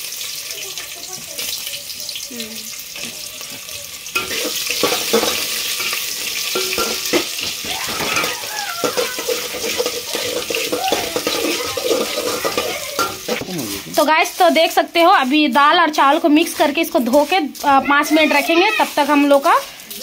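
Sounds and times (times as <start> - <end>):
onions sizzling in hot oil: 0.0 - 20.0
spatula scraping and knocking pot: 4.2 - 17.4.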